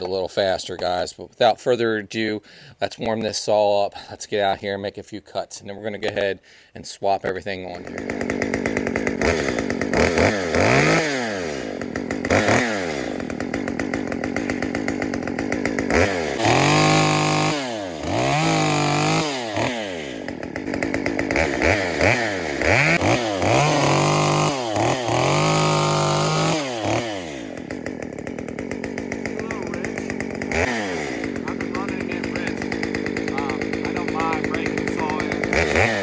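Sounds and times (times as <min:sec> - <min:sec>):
chainsaw idling and revving: 0:07.5 - 0:36.0.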